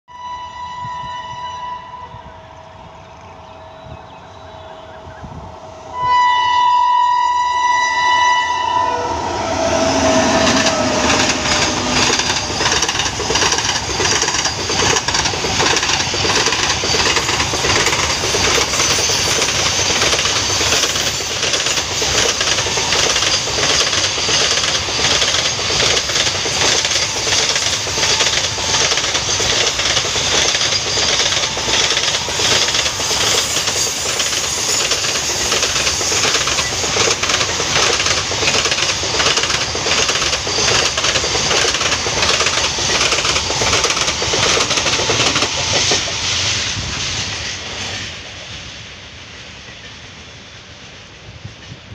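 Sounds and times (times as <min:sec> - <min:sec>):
locomotive horn: 0:00.1 - 0:02.8, 0:03.8 - 0:13.0
train wheels clattering on rails: 0:09.5 - 0:51.9.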